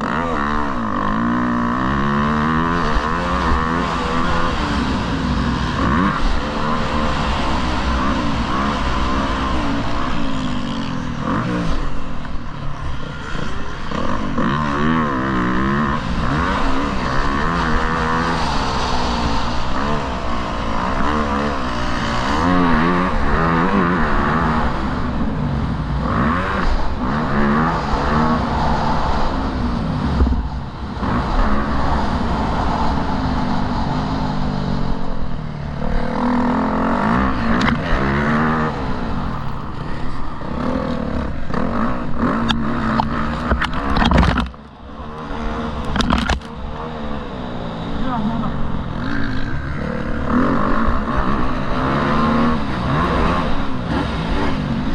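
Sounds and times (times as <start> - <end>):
motocross bike engine revving: 0.0 - 54.9
sharp clicks and knocks: 42.4 - 44.7, 45.8 - 46.6.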